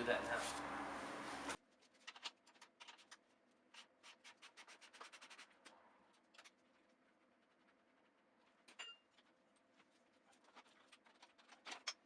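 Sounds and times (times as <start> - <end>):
small clicks and scratches: 1.5 - 12.0.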